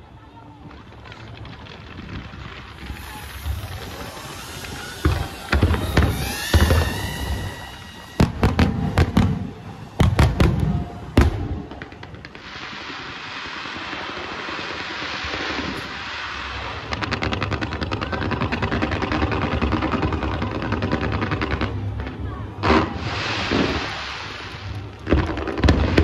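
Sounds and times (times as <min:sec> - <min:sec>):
crackling hiss of fireworks: 0:00.0 - 0:26.0
fast firework crackles: 0:00.0 - 0:26.0
firework shell bursts: 0:02.7 - 0:10.4.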